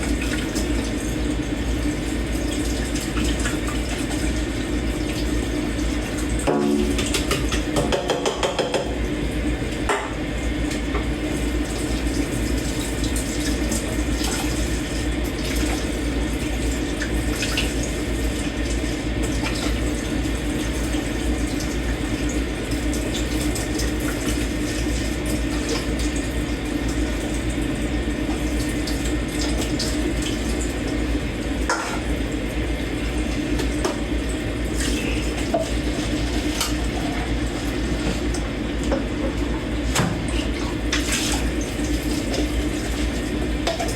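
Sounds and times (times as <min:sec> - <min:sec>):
tap running into sink: 0:06.4 - 0:09.0, 0:38.0 - 0:41.4.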